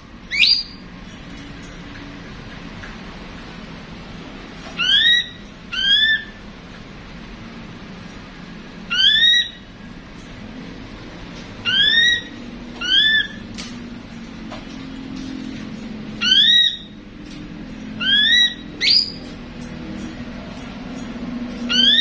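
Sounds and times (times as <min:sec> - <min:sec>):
bird whistled upslurred calls: 0:00.3 - 0:00.8, 0:04.8 - 0:06.3, 0:08.9 - 0:09.6, 0:11.6 - 0:13.4, 0:16.2 - 0:16.9, 0:18.0 - 0:19.2, 0:21.7 - 0:22.0.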